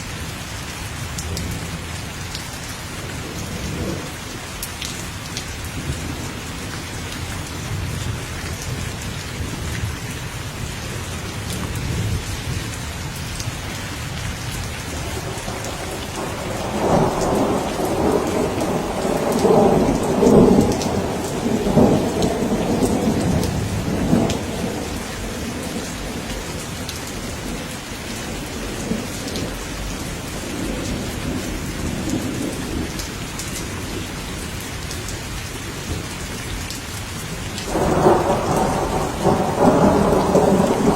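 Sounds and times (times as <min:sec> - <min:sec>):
heavy rain falling: 0:00.0 - 0:40.9
rolling thunder rumble: 0:13.5 - 0:34.6, 0:37.6 - 0:40.9.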